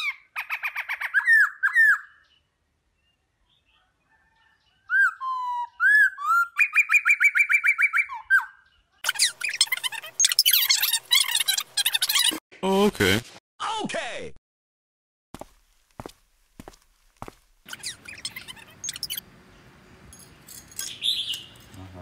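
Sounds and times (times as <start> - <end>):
songbird singing: 0.0 - 12.3, 17.7 - 22.0.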